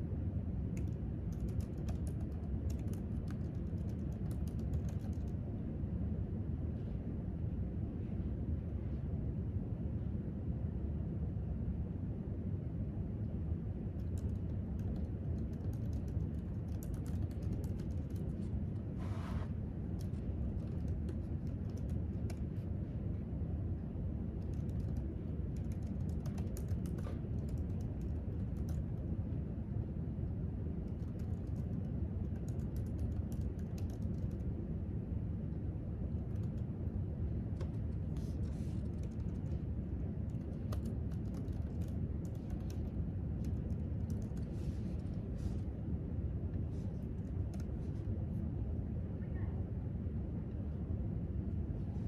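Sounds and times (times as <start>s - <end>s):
low room hum: 0.0s - 52.0s
typing on laptop keyboard: 0.7s - 5.4s, 13.9s - 18.9s, 19.8s - 22.6s, 24.4s - 29.0s, 30.8s - 34.5s, 36.2s - 36.7s, 37.6s - 39.6s, 40.2s - 45.2s, 47.2s - 47.8s.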